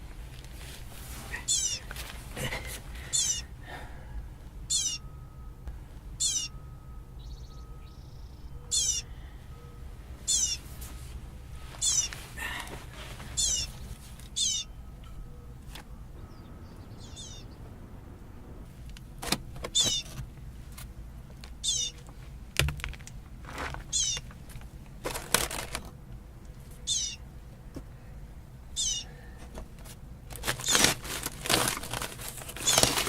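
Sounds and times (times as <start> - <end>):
baby bird begging chirps: 1.4 - 1.8, 3.1 - 3.6, 4.6 - 5.2, 6.2 - 9.4, 10.2 - 10.7, 11.8 - 12.2, 13.3 - 15.0, 16.3 - 17.6, 19.7 - 20.1, 21.6 - 22.0, 23.9 - 24.2, 26.8 - 27.2, 28.7 - 29.1.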